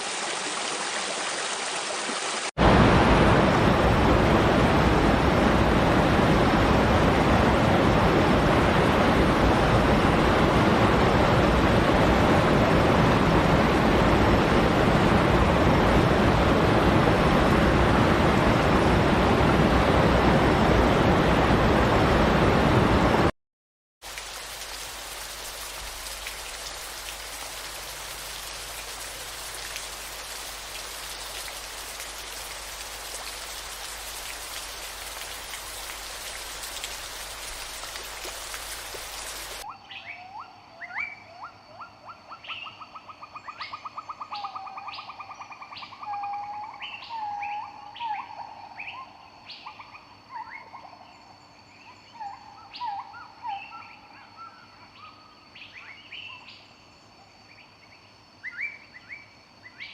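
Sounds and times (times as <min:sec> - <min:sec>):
rain-like hiss: 0:00.0 - 0:23.3, 0:24.0 - 0:39.7.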